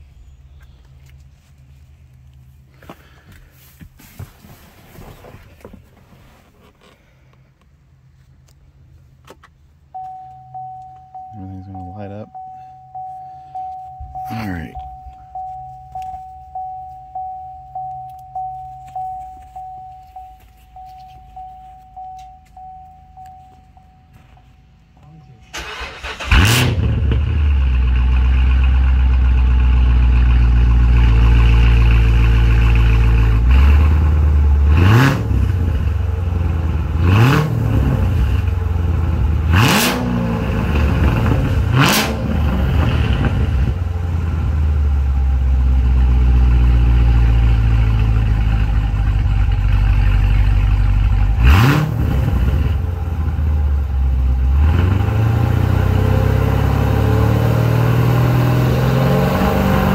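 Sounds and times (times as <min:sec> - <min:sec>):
car engine starting and idling: 0:00.0 - 0:59.9
engine throttle blips: 0:09.9 - 0:33.7.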